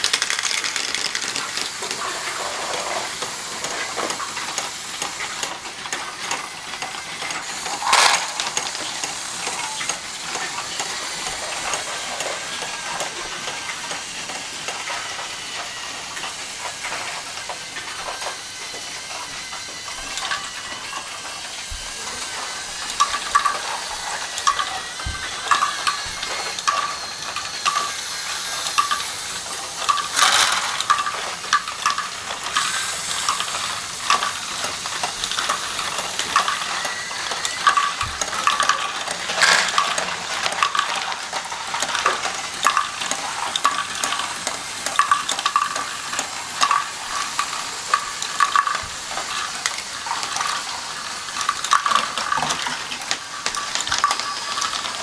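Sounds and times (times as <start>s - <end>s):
small hard objects clicking and rattling: 0.0s - 55.0s.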